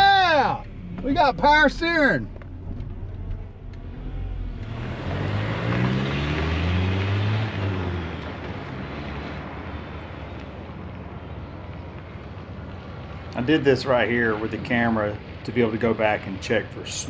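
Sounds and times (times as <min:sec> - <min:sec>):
car engine revving and idling: 0:00.0 - 0:10.4.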